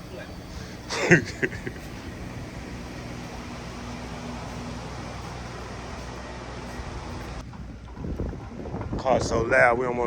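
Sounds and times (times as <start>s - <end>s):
hiss: 0.0s - 3.9s
motor humming: 0.0s - 8.6s.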